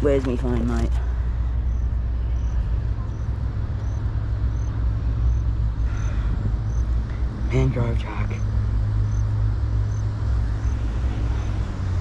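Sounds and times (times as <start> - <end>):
road traffic rumble: 0.0 - 12.0
faint high-pitched chirp: 1.6 - 6.9.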